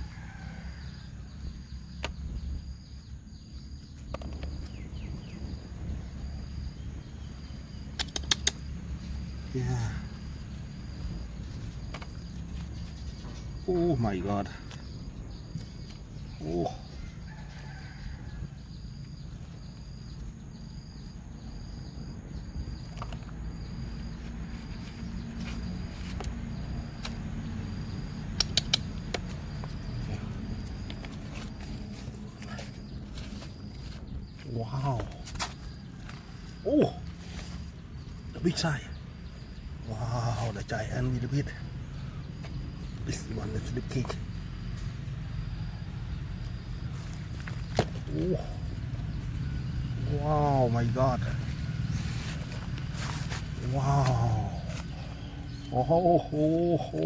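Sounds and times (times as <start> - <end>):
sharp clicks: 7.8 - 8.7, 28.3 - 29.4.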